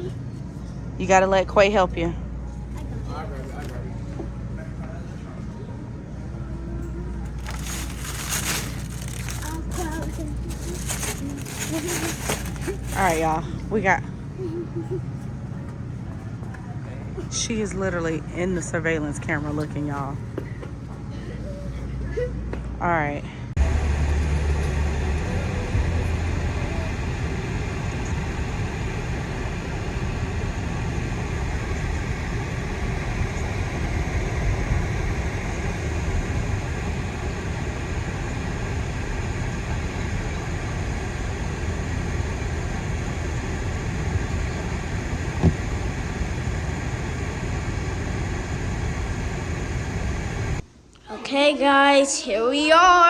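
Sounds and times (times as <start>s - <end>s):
car road and engine noise: 23.6s - 50.6s.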